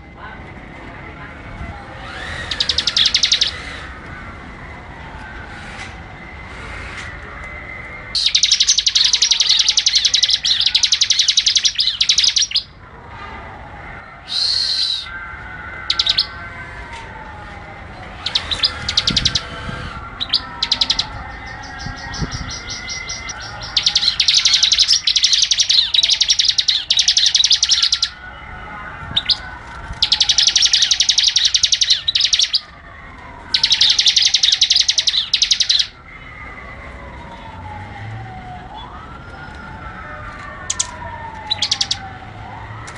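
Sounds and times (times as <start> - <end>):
bird singing rapid chipping notes: 2.1 - 3.8, 8.2 - 12.7, 18.2 - 28.2, 30.0 - 32.6, 33.5 - 35.9, 40.7 - 42.2
bird calls: 2.1 - 4.0, 8.2 - 12.7, 18.2 - 28.2, 29.2 - 32.7, 33.5 - 35.9, 40.7 - 42.2.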